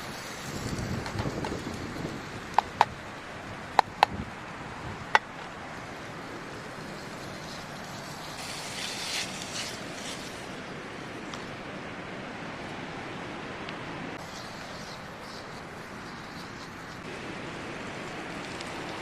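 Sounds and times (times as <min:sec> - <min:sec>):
background hiss: 0:00.0 - 0:19.0
brief rustle: 0:07.3 - 0:10.5.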